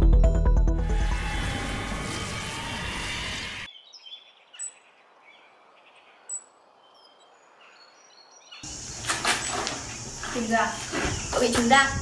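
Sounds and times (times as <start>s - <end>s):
small birds chirping: 3.4s - 12.0s
outdoor background hiss: 3.8s - 12.0s.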